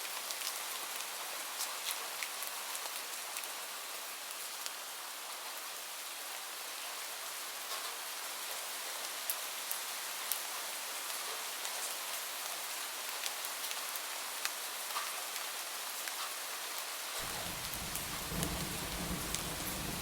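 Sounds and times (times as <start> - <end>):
steady rain falling: 0.0 - 20.0
sharp raindrop ticks: 17.2 - 20.0.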